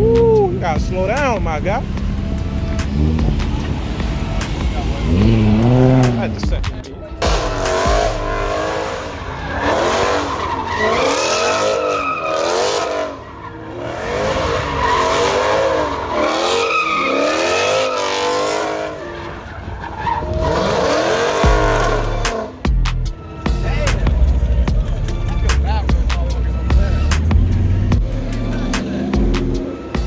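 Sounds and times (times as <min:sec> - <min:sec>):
car tires squealing: 0:00.0 - 0:06.5, 0:07.2 - 0:22.7, 0:25.4 - 0:30.0
car engine rumble: 0:00.0 - 0:30.0.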